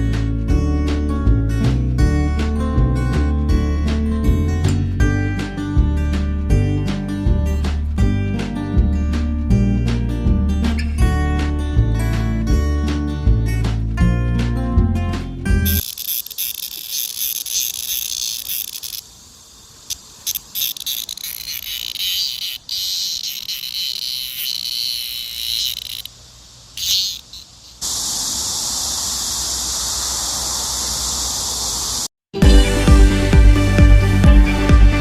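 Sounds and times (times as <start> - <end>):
cicadas singing: 15.6 - 32.1.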